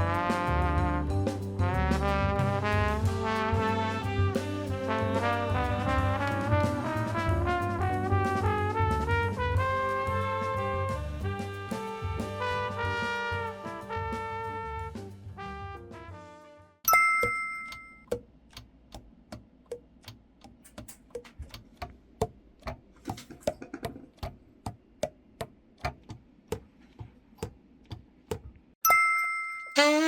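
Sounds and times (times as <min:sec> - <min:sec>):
ringing ding: 0:16.9 - 0:18.1, 0:28.8 - 0:30.0.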